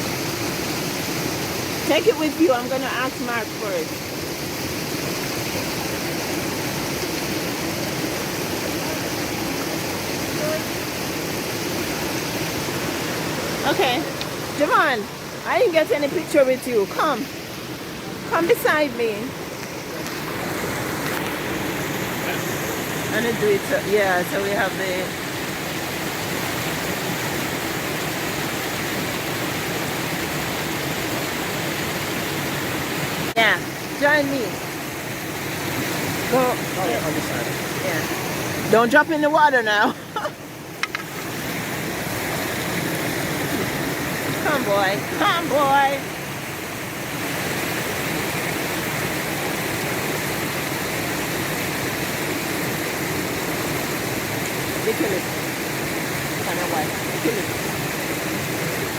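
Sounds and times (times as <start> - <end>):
stream water rushing: 0.0 - 58.9.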